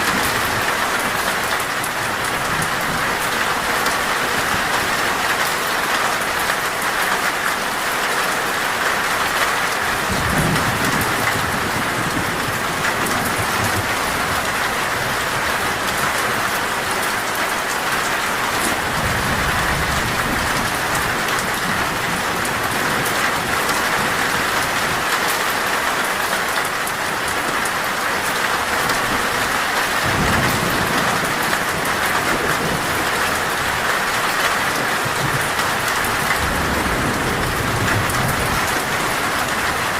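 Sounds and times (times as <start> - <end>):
heavy rain on a metal roof: 0.0 - 39.9
thunder rumbling: 10.0 - 25.1, 28.6 - 39.9.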